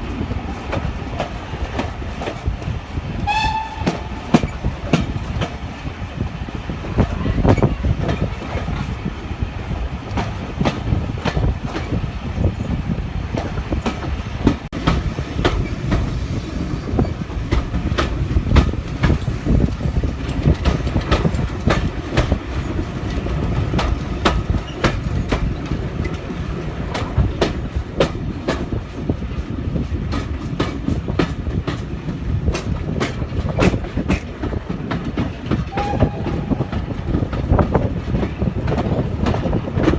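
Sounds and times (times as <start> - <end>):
train rumbling on track: 0.0 - 39.9
wheels clicking over rail joints: 0.5 - 6.3, 16.9 - 39.9.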